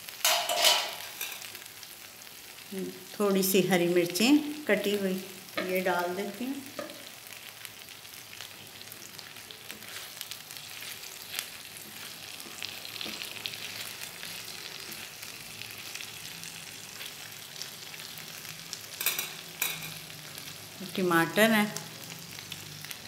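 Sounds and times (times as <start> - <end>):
chicken sizzling in oil: 0.0 - 23.0
spatula scraping a pan: 0.2 - 1.5, 9.7 - 15.2.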